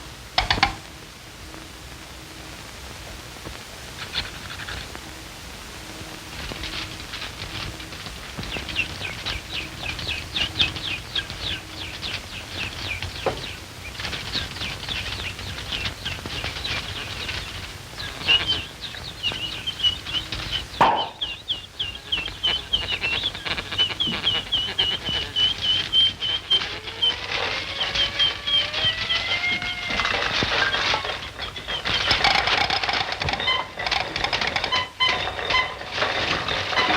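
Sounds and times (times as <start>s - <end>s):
faint soundtrack hum: 0.0s - 36.9s
high bird-like twittering: 7.8s - 32.3s.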